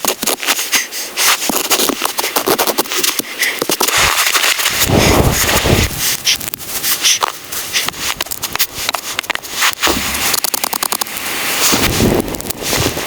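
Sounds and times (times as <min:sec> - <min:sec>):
deep rustling noise: 0:00.2 - 0:13.0
wood fire crackling: 0:01.4 - 0:13.0.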